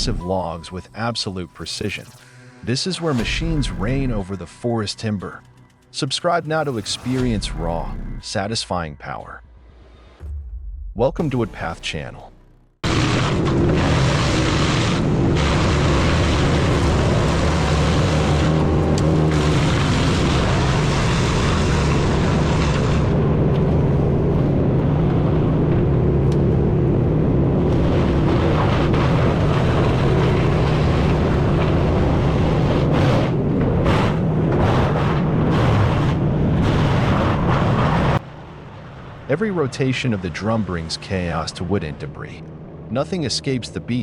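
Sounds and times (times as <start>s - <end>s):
wood chipper engine droning: 12.8s - 38.2s.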